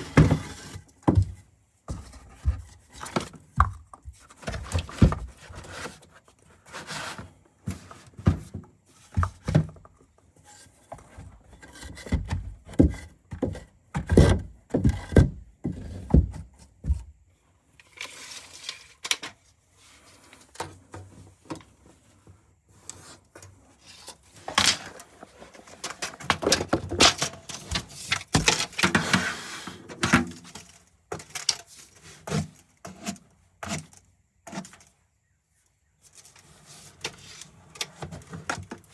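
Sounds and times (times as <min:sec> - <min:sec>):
scraping and rustling: 0:00.0 - 0:09.6
objects knocking and clunking: 0:24.4 - 0:29.2.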